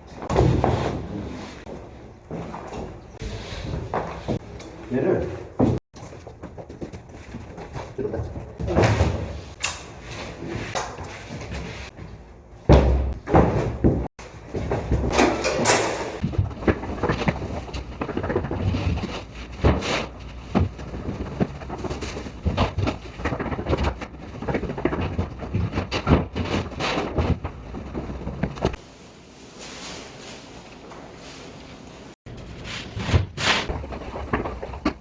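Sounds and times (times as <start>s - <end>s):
wood knocks and thuds: 12.7s - 15.4s, 16.2s - 28.8s.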